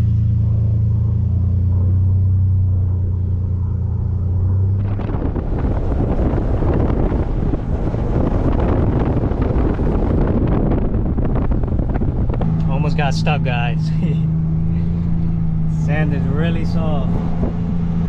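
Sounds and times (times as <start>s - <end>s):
truck engine droning: 0.0s - 18.0s.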